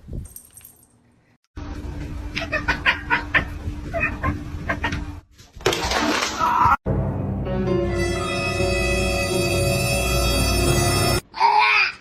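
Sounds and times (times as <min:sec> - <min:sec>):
eerie soundtrack music: 0:06.9 - 0:11.2.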